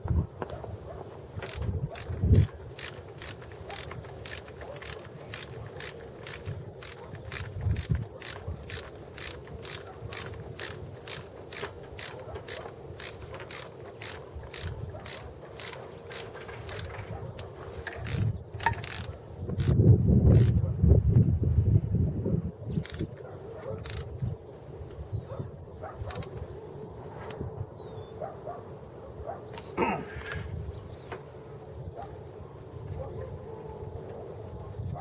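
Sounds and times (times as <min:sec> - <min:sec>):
ratchet wrench clicking: 0:01.4 - 0:20.6, 0:22.8 - 0:23.2, 0:23.8 - 0:24.3, 0:26.1 - 0:26.3.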